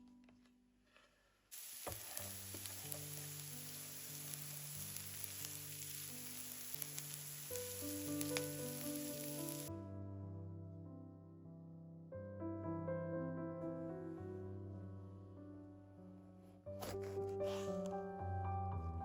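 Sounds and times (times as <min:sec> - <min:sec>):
food sizzling in a frying pan: 0:01.5 - 0:09.7
small pops from frying: 0:01.6 - 0:09.7
soft background music: 0:02.2 - 0:19.0.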